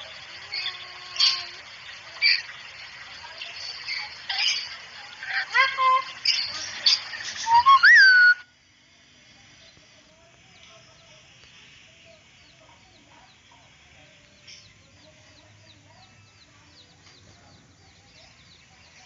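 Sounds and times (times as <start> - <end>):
soft wavering bird calls: 3.8 - 8.5
high bird chirps: 7.4 - 8.4.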